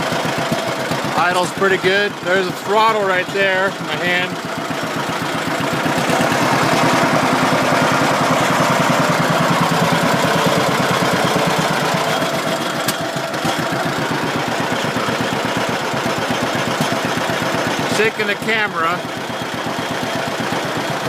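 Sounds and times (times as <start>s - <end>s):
tractor engine idling: 0.0s - 21.0s.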